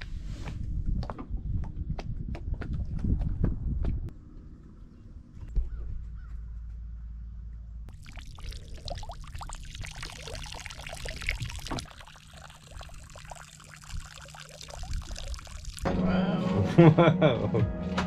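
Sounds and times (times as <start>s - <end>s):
water splashing and trickling: 7.9s - 15.9s.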